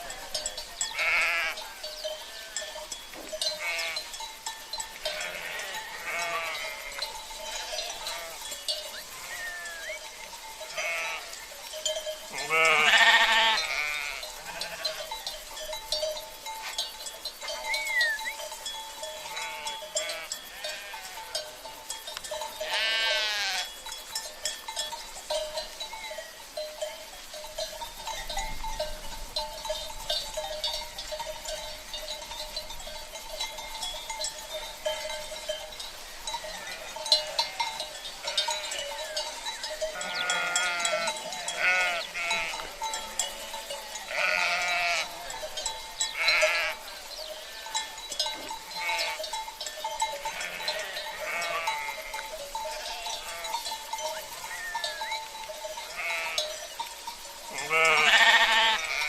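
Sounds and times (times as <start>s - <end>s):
sheep bleating: 0.0s - 2.6s, 3.5s - 4.1s, 5.0s - 8.5s, 9.1s - 10.0s, 10.7s - 11.4s, 12.3s - 15.1s, 19.2s - 21.2s, 22.6s - 23.7s, 36.5s - 38.9s, 39.9s - 45.4s, 46.2s - 47.8s, 48.7s - 49.3s, 50.3s - 53.7s, 55.9s - 56.5s, 57.5s - 59.0s
cowbells jangling: 0.0s - 59.0s.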